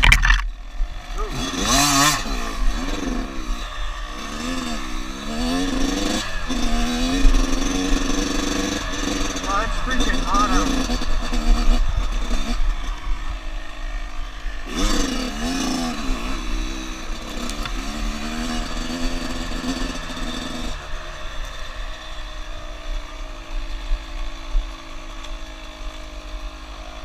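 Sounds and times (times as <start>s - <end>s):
off-road vehicle engine revving: 0.0s - 27.0s.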